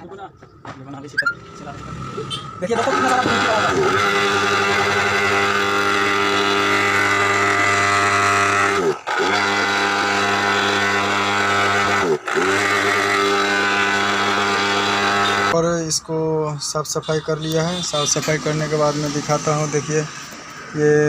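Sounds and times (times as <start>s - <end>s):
electric blower motor running: 2.8s - 15.6s.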